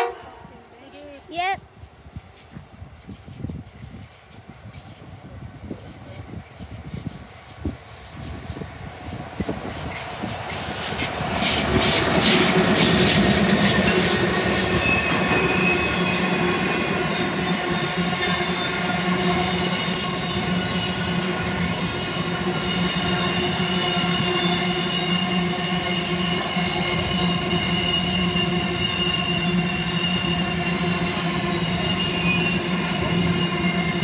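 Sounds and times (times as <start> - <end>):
diesel locomotives passing: 0.0 - 34.0
high-pitched squealing wheels: 0.0 - 34.0.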